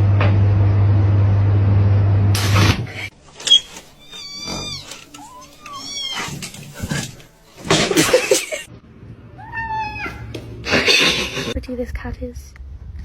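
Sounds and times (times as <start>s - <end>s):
cat meowing: 4.0s - 6.5s, 9.4s - 10.3s.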